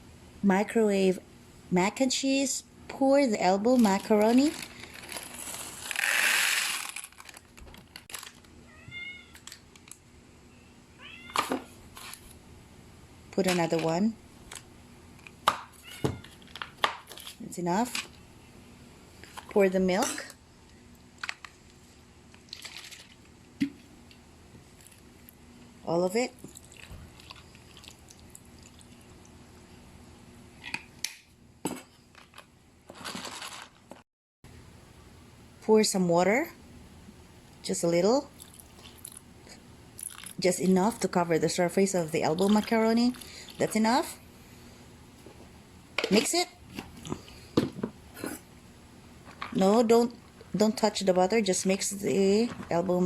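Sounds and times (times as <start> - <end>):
cat meowing: 8.7 - 9.4, 11.0 - 11.4.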